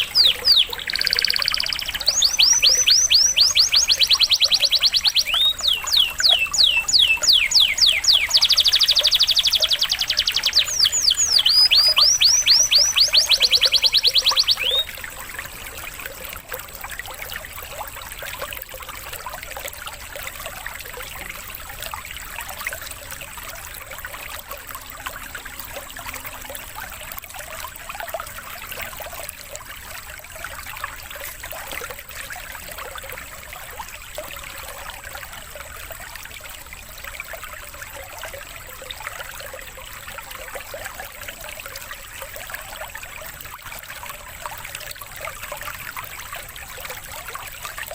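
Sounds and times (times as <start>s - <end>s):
canary trilling: 0.0s - 14.9s
stream water babbling: 0.0s - 47.9s.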